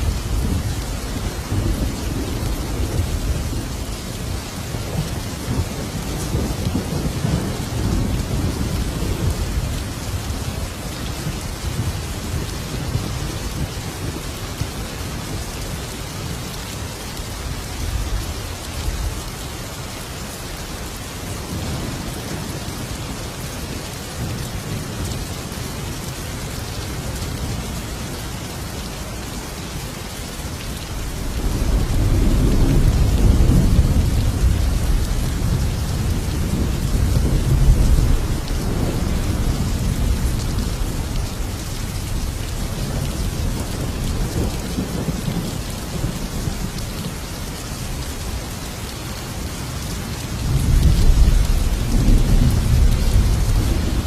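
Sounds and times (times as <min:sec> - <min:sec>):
heavy rain: 0:00.0 - 0:54.0
thunder rolling: 0:30.9 - 0:41.1.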